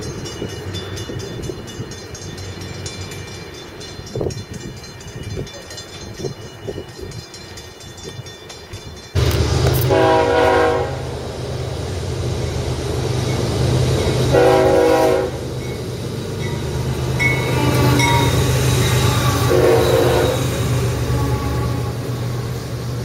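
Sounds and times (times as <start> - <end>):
train rumbling past: 0.0 - 23.0
locomotive air horn blasts: 9.2 - 11.2, 14.2 - 15.5, 17.4 - 22.6.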